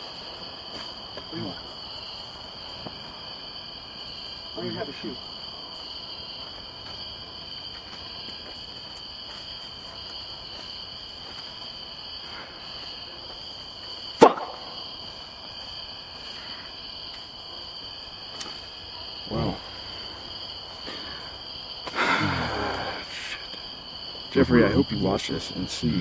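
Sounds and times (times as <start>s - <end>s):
insects chorus: 0.0s - 26.0s
sharp knock: 14.2s - 14.7s.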